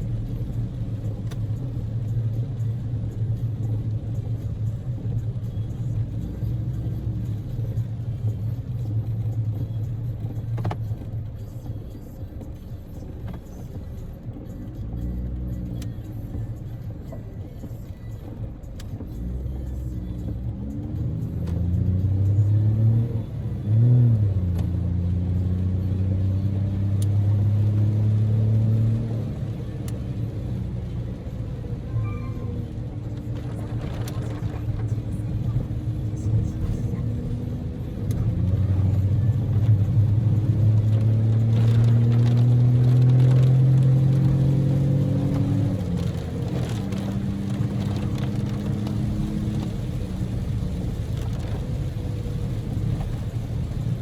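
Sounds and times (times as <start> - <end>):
road noise inside car: 0.0 - 54.0
car engine revving: 18.8 - 54.0.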